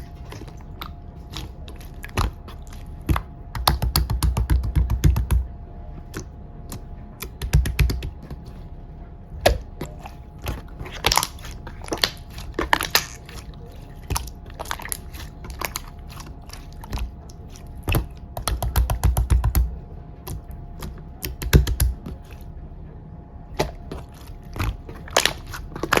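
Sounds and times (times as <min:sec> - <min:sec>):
slime squishing clicks: 0:20.3 - 0:22.3.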